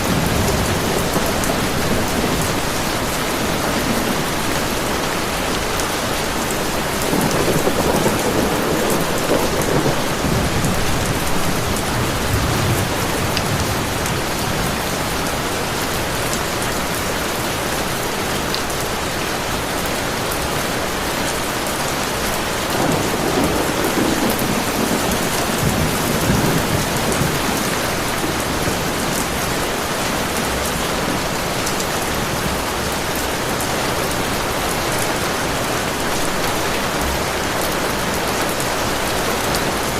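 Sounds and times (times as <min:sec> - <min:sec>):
thunder rumbling: 0:00.0 - 0:16.0, 0:22.1 - 0:38.1
heavy rain falling: 0:00.0 - 0:39.9.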